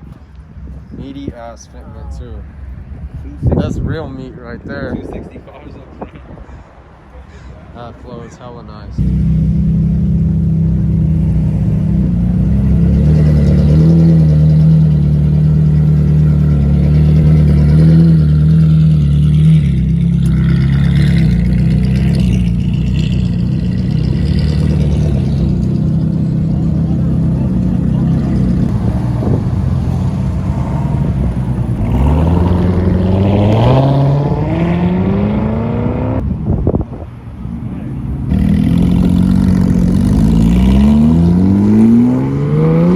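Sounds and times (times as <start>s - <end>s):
car engine revving: 8.9s - 36.4s, 37.8s - 42.9s.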